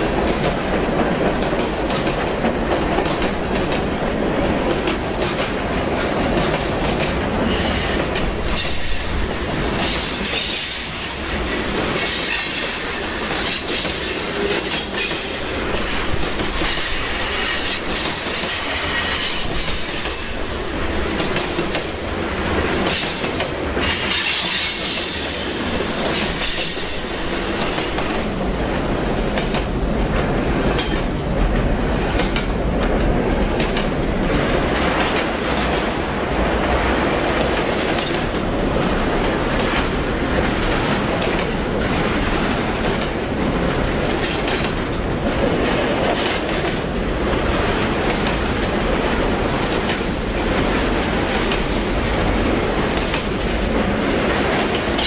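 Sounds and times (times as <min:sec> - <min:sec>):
train wheels rumbling on rail: 0:00.0 - 0:55.0
high wheel squeal: 0:07.5 - 0:14.6.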